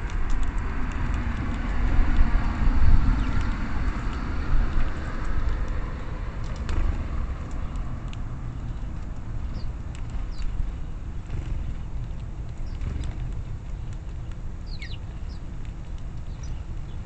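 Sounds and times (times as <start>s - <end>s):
road vehicle passing: 0.0s - 17.0s
steady low rumble: 0.0s - 17.0s
high bird chirps: 14.6s - 15.4s.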